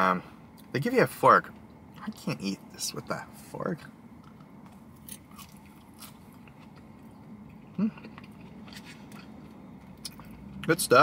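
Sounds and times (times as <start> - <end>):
person chewing fries: 4.2 - 10.8.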